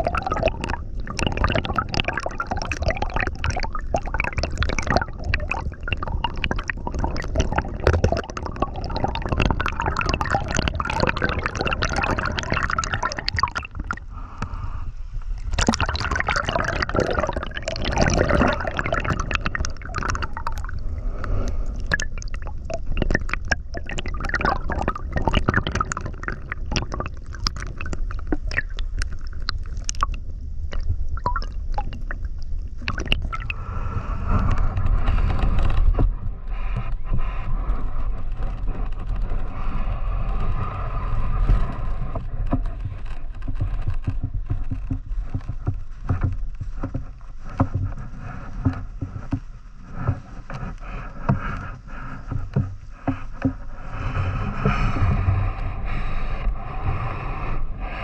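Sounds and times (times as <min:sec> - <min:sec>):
small splashes: 0:15.4 - 0:33.6
river water gurgling: 0:15.5 - 0:30.0.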